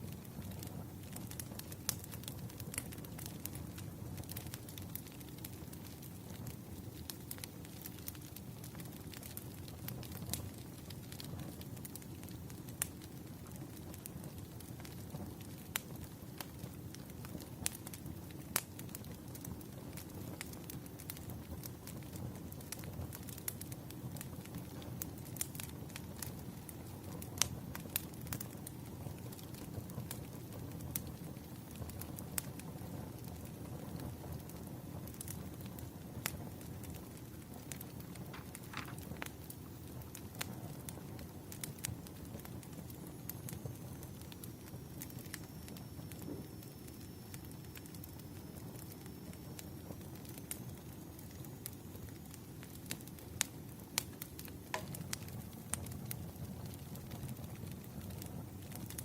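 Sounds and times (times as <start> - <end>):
pops and snaps of fire: 0.0 - 59.0
wood fire crackling: 0.0 - 59.0
sharp pops: 54.7 - 55.2.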